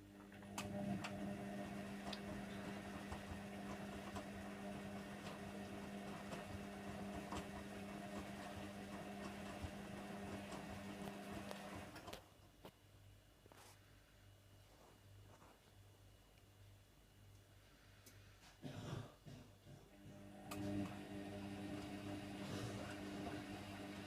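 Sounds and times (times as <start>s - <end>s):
washing machine motor hum: 0.0s - 12.2s, 19.9s - 24.0s.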